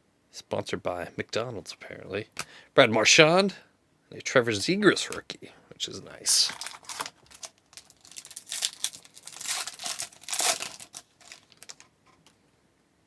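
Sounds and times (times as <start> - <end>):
wrapper tearing and crinkling: 6.3 - 11.9.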